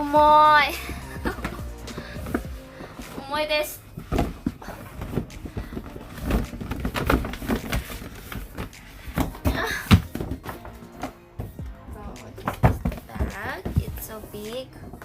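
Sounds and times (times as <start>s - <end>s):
gift box being handled and opened: 0.2s - 15.0s.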